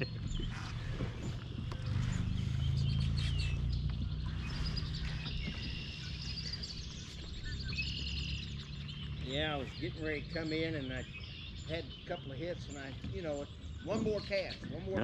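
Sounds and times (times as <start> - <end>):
low rumble: 0.0 - 12.0
birds chirping and singing: 0.0 - 15.0.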